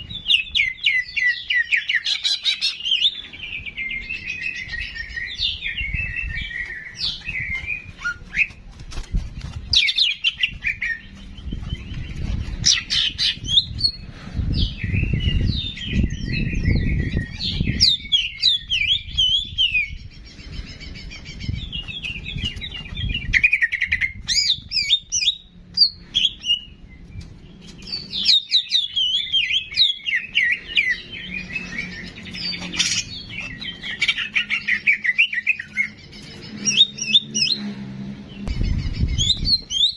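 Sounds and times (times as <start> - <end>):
songbird chirps and trills: 0.0 - 39.9
low rumble: 37.4 - 39.7.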